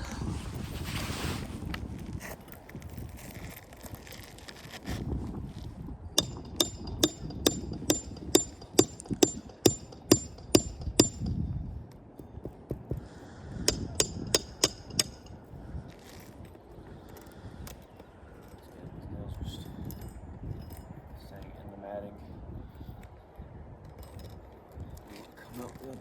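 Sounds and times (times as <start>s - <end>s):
hammer striking roofing nails: 6.2s - 11.4s, 12.2s - 15.3s.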